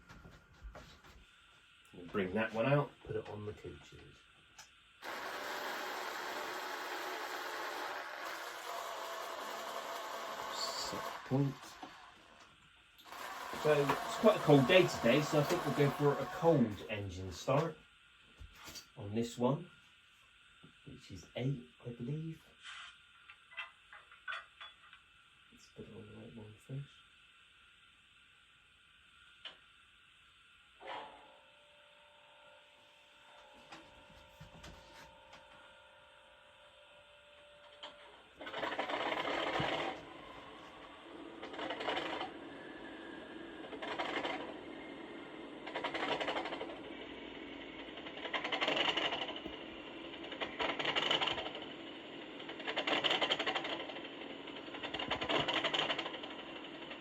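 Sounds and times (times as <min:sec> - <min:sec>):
diesel engine turning over: 0:13.0 - 0:16.8, 0:38.4 - 0:57.0.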